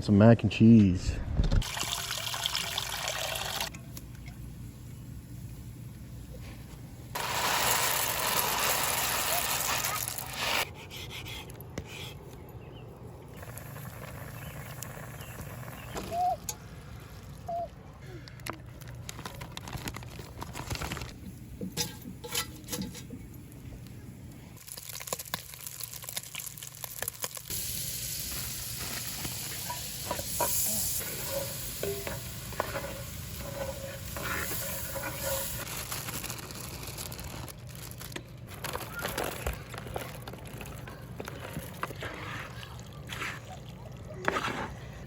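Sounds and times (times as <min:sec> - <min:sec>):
food sizzling: 0:07.1 - 0:10.6, 0:24.6 - 0:37.5
utensil clinking in pot: 0:29.6 - 0:35.6.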